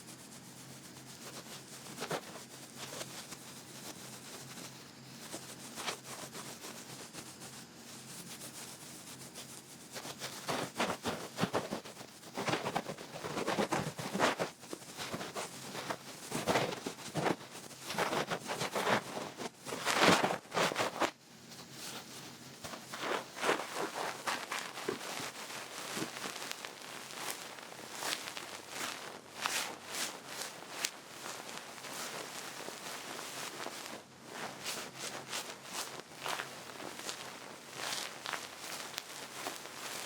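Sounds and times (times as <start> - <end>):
ear pick scratching close to ear: 9.9 - 40.0.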